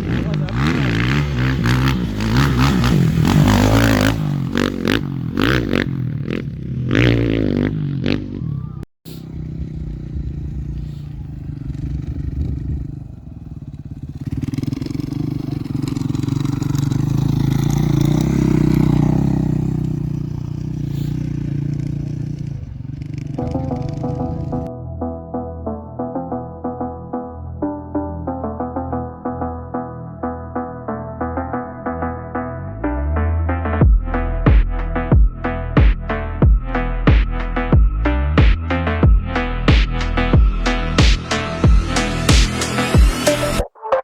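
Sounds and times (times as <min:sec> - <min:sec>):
race engine passing: 0:00.0 - 0:24.7
gravel clattering under wheels: 0:09.4 - 0:24.7.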